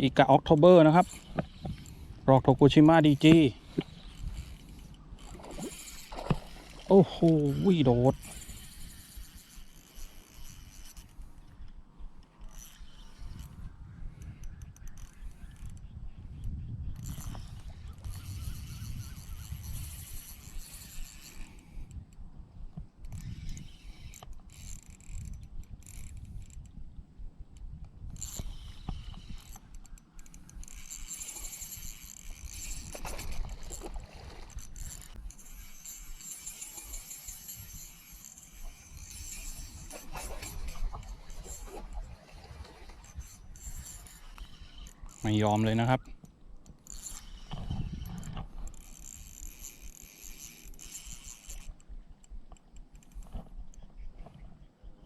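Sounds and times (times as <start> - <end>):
fishing reel gears whirring: 0.0 - 54.7
wind rumble on microphone: 12.8 - 29.7, 47.4 - 49.3.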